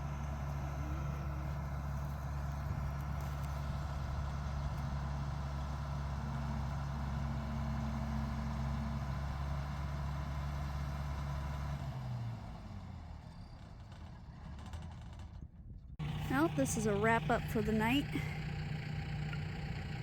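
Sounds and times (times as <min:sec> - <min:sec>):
large engine idling: 0:00.0 - 0:11.8, 0:16.0 - 0:20.0.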